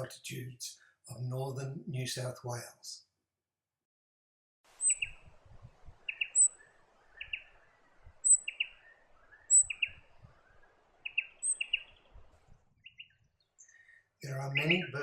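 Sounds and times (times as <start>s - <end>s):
bird calling: 4.8s - 5.2s, 6.0s - 12.0s, 12.9s - 15.0s.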